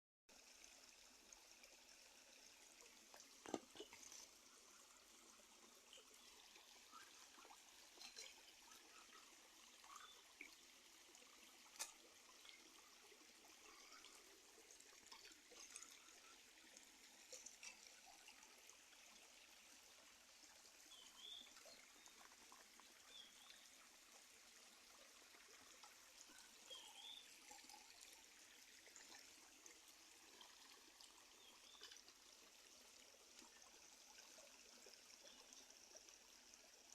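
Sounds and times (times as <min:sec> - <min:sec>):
drips and patters: 0:00.3 - 0:36.9
faint steady rain: 0:00.3 - 0:36.9.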